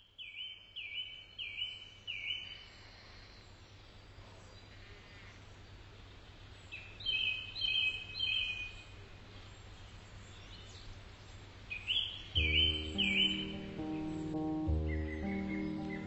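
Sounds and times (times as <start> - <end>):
bird singing high phrases: 11.8 - 16.0
music: 12.4 - 16.0.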